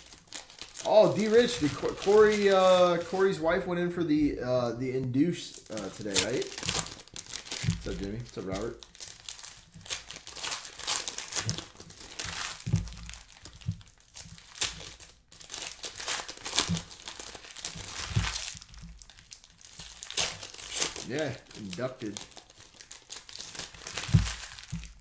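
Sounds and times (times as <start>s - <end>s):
cards being handled: 0.0s - 3.6s, 5.4s - 8.9s
plastic wrappers crinkling and tearing: 0.0s - 3.7s, 5.4s - 25.0s.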